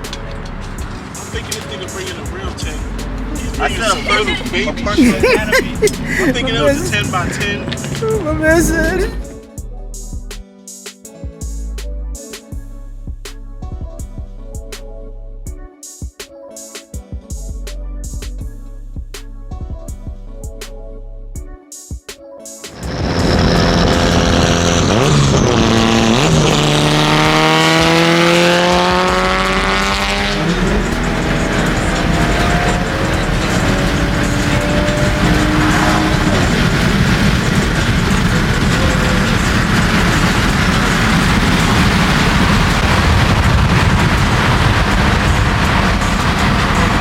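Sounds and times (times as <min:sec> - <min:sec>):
car engine accelerating: 0:00.0 - 0:09.4, 0:22.8 - 0:47.0
road noise: 0:00.0 - 0:09.4, 0:22.7 - 0:47.0.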